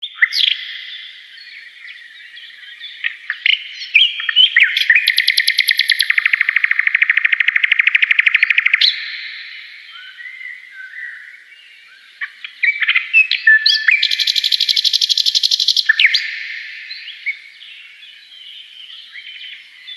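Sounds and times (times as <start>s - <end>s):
songbird chirps and whistles: 0.0s - 19.9s
rapid bird trill: 0.1s - 11.2s, 12.2s - 17.5s.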